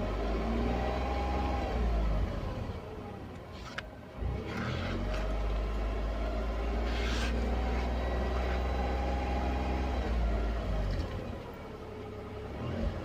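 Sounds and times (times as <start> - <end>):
car engine revving: 3.6 - 11.4, 12.3 - 13.0.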